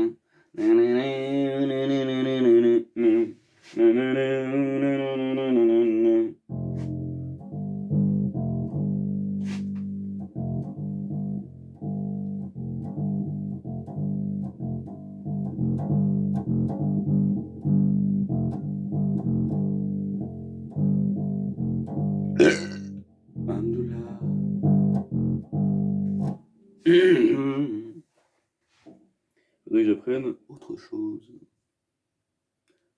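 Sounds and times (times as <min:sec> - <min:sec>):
plucked bass guitar: 0:06.5 - 0:27.8.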